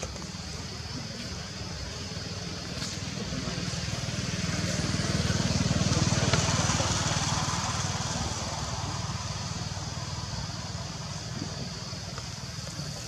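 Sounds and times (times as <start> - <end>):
engine running with low pulse: 0.0 - 13.0.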